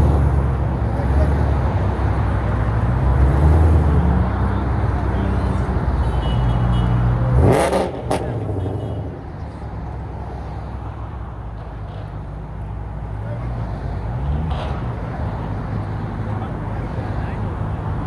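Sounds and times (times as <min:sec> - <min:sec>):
car engine revving: 0:07.3 - 0:08.8.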